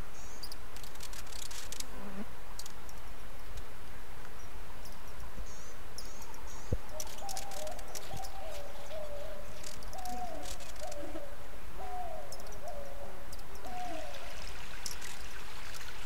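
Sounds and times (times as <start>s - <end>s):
steady hiss: 0.0s - 16.0s
bird hooting: 6.9s - 14.4s.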